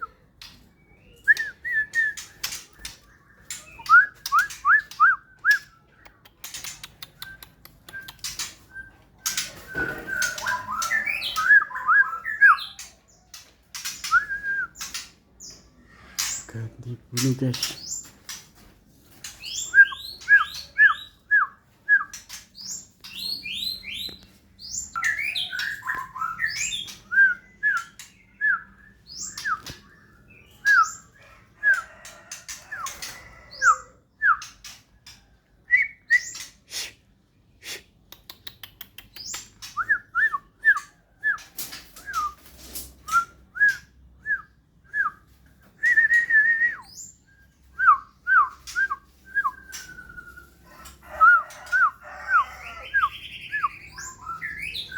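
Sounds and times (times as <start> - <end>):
songbird whistling and chirping: 0.0 - 16.3, 19.3 - 36.9, 38.5 - 54.9
bird sharp clicks: 4.2 - 8.5, 38.1 - 39.8.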